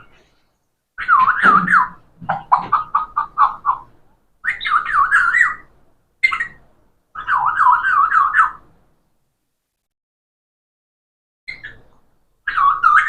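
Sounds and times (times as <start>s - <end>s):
parrot whistling warbling call: 4.4s - 6.6s, 7.2s - 8.6s.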